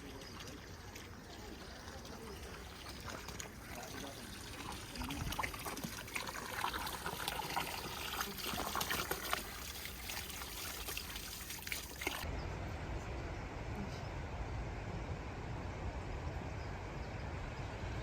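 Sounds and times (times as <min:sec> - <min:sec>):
water trickling and splashing: 0:00.0 - 0:12.3
low steady rumble: 0:12.2 - 0:18.0.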